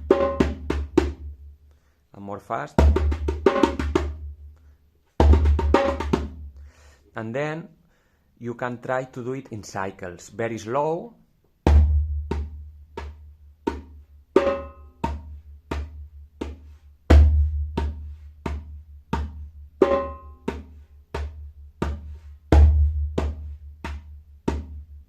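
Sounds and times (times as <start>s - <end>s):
djembe played by hand: 0.0s - 1.4s, 2.8s - 4.4s, 5.2s - 6.5s, 11.7s - 24.9s.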